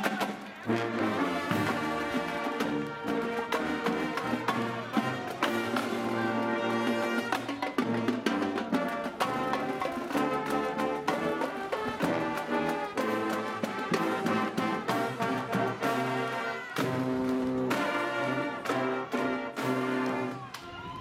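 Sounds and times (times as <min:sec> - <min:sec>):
brass horns playing: 0:00.4 - 0:20.4.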